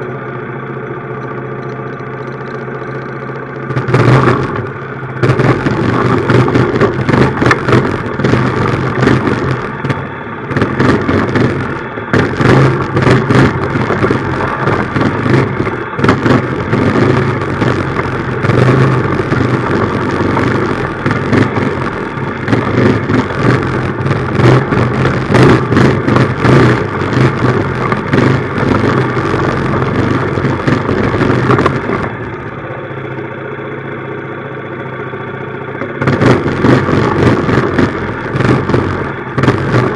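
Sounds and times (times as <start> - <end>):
minibike engine running: 0.0 - 39.9
knocks and rattles: 3.7 - 32.2.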